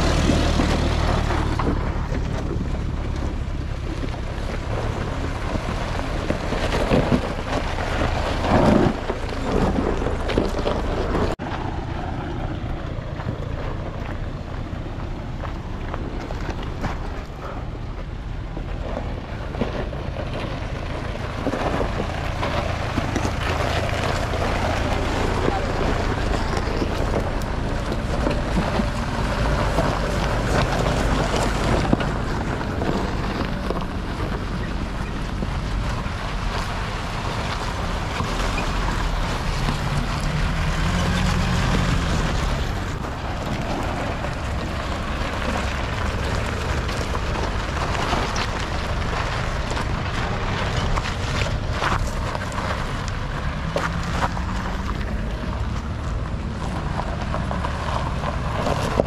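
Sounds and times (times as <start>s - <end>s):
off-road vehicle engine driving: 0.0s - 59.0s.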